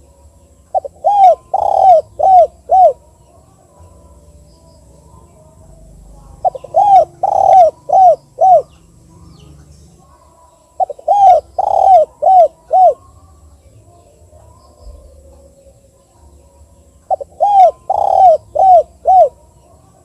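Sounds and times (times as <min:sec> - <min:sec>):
dove cooing: 0:00.0 - 0:04.4, 0:05.1 - 0:08.8, 0:09.4 - 0:13.1, 0:17.0 - 0:20.0.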